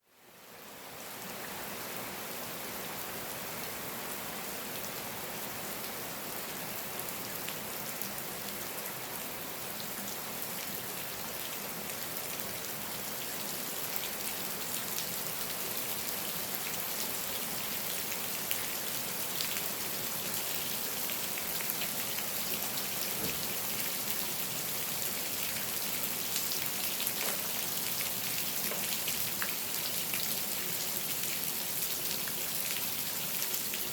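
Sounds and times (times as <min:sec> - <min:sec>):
steady rain falling: 0:00.1 - 0:33.9
raindrops hitting close: 0:21.4 - 0:25.7.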